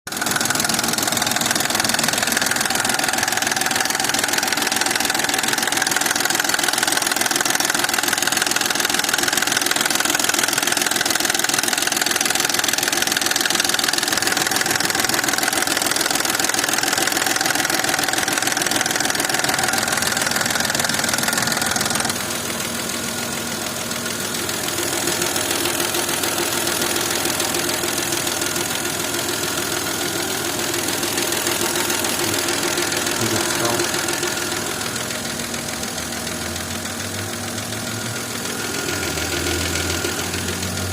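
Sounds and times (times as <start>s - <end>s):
engine idling with knock: 0.1s - 40.9s.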